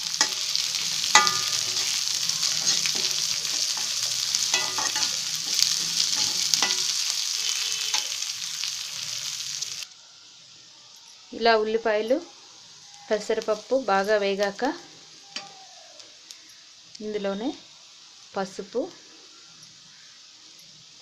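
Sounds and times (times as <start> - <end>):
food sizzling in hot oil: 0.0 - 21.0
metal spatula scraping pan: 0.1 - 8.3.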